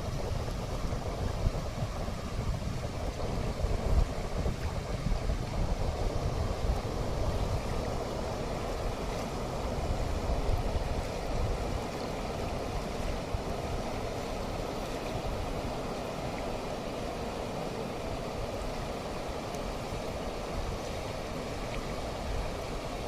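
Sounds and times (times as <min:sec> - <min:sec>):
wind buffeting microphone: 0:00.0 - 0:23.0
waterfall rushing: 0:06.1 - 0:23.0.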